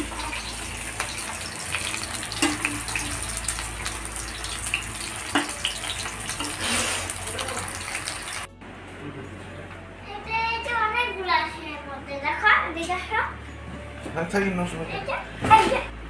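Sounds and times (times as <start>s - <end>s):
fritters sizzling in oil: 0.0s - 8.5s
metal spatula scraping pan: 6.3s - 7.3s.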